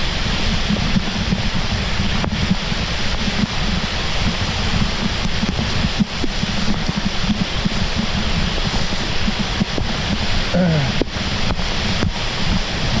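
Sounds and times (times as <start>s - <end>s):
heavy rain pouring: 0.0s - 13.0s
raindrops ticking on camera: 0.0s - 13.0s
wind rumbling on microphone: 0.0s - 13.0s
short falling voice-like sound: 10.5s - 11.0s.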